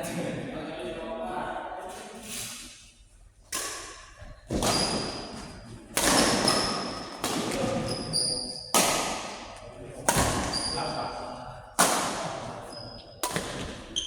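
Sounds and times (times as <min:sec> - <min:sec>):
racket hitting ball: 0:05.9 - 0:07.8, 0:08.7 - 0:09.4, 0:11.8 - 0:12.5, 0:13.2 - 0:14.0.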